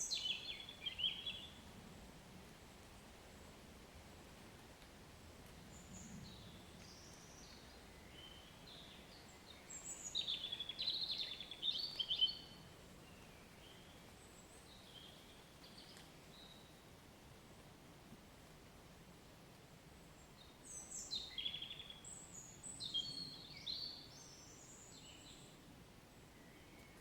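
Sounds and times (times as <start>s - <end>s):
songbirds chirping and trilling: 0.0s - 1.7s, 5.7s - 16.9s, 20.0s - 27.0s
faint rain hiss: 0.0s - 27.0s.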